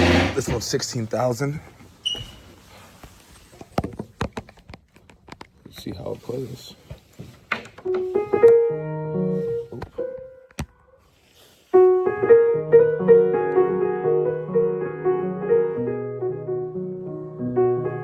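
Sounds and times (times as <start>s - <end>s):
piano chords and melody: 7.8s - 18.0s.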